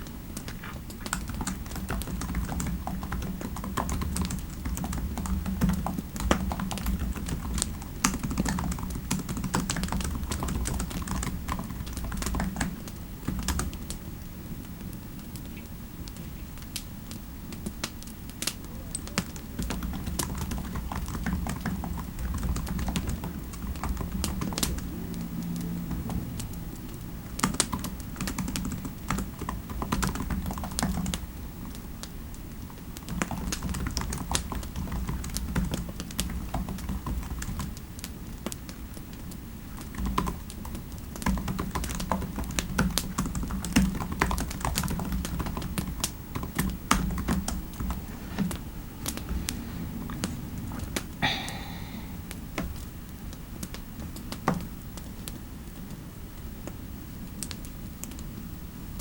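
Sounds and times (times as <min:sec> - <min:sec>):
typing on computer keyboard: 0:00.4 - 0:14.0, 0:18.9 - 0:24.9, 0:27.4 - 0:31.2, 0:33.0 - 0:37.8, 0:39.7 - 0:48.0
low background rumble: 0:43.5 - 0:53.6.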